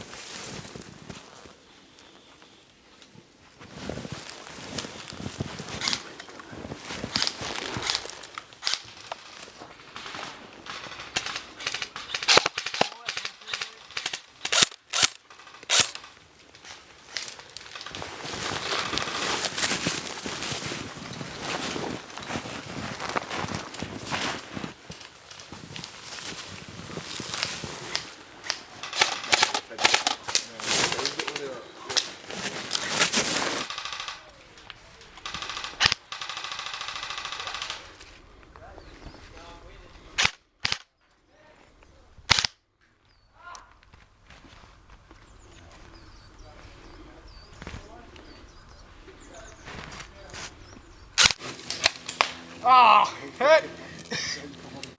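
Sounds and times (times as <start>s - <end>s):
sharp crack: 6.9s - 20.8s, 27.3s - 34.4s, 42.3s - 42.6s, 51.2s - 54.9s
airsoft guns firing: 9.8s - 16.2s, 27.9s - 32.0s, 33.6s - 34.3s, 35.2s - 38.0s, 51.2s - 54.3s.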